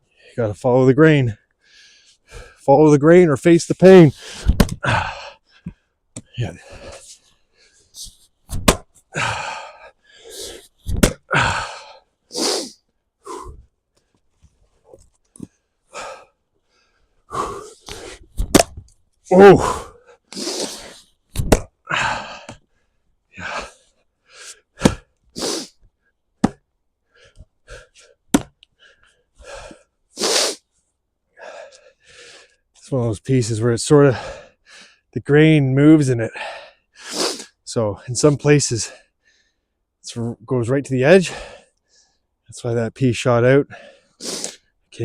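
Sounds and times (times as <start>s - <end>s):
man breathing hard: 1.6s - 2.6s, 4.1s - 8.2s, 9.1s - 13.7s, 15.4s - 18.3s, 19.5s - 21.1s, 21.8s - 25.8s, 27.0s - 30.7s, 31.4s - 32.6s, 34.1s - 35.1s, 38.9s - 39.8s, 43.7s - 44.7s
axe striking a log: 4.4s - 4.8s, 8.5s - 8.9s, 10.9s - 11.2s, 18.4s - 18.8s, 21.4s - 21.7s, 26.4s - 26.6s, 28.3s - 28.6s.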